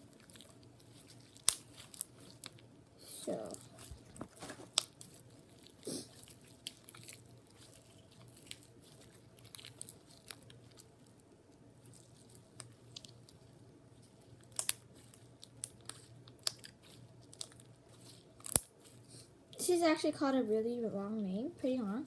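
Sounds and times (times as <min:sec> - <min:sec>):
slime squished with sticky clicks: 0:14.5 - 0:17.5.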